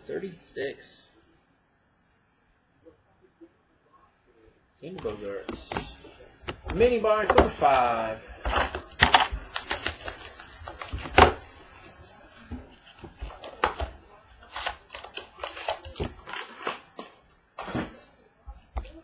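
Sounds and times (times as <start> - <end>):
cardboard box and cards handled: 5.0 - 19.0.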